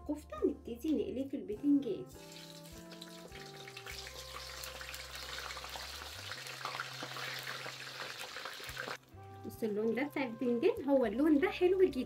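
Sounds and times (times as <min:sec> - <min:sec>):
slices frying in hot oil: 0:02.2 - 0:09.1.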